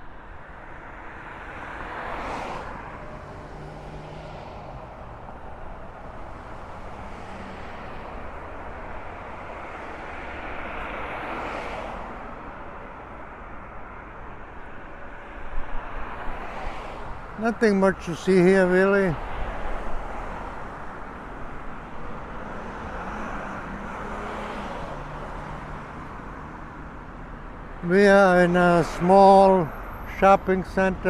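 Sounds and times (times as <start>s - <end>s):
busy street traffic: 0.0s - 31.0s
vehicle passing close by: 1.3s - 12.4s, 21.8s - 27.1s.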